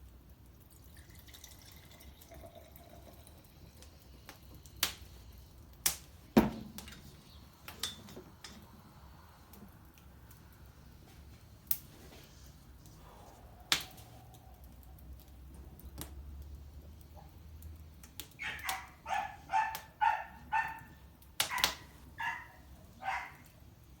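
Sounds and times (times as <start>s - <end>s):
sharp pops: 13.7s - 14.1s
small dog yapping: 18.3s - 23.5s.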